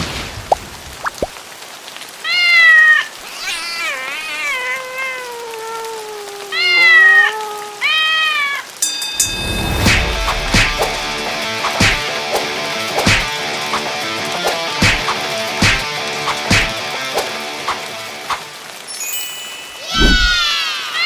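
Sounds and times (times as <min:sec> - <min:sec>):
rain pattering: 0:00.0 - 0:21.0
cat meowing: 0:02.2 - 0:08.7
cat yowling: 0:02.2 - 0:08.8, 0:19.9 - 0:21.0
music: 0:08.8 - 0:19.8.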